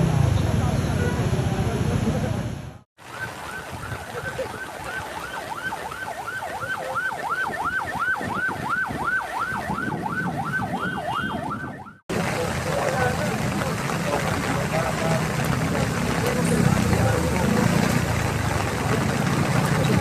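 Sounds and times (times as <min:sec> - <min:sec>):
emergency siren yelping: 0:03.1 - 0:12.0
low rumbling noise: 0:12.1 - 0:20.0.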